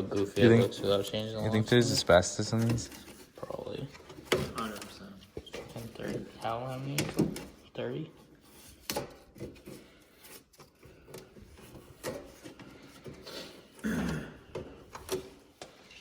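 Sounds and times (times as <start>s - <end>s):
plastic parts clicking and rubbing: 0.0s - 7.6s.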